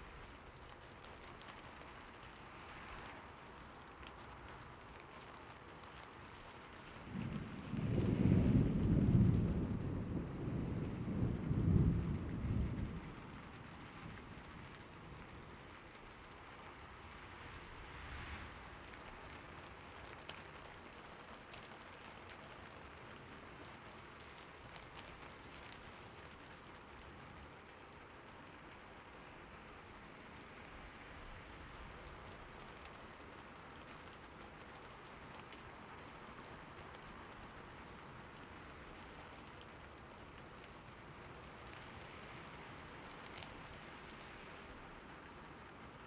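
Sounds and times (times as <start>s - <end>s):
steady rain hiss: 0.0s - 46.0s
thunder rolling: 7.0s - 13.7s.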